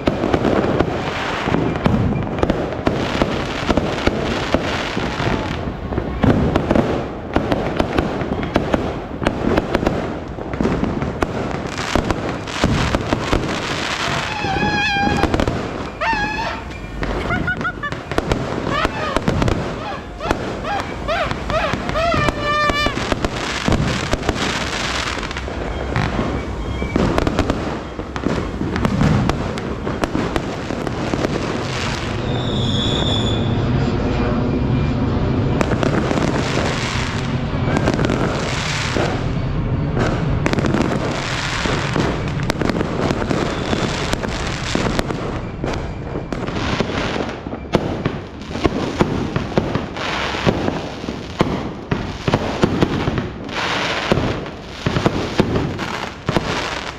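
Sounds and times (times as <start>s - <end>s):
fireworks banging and crackling: 0.0s - 56.9s
brief high tone: 14.1s - 23.2s.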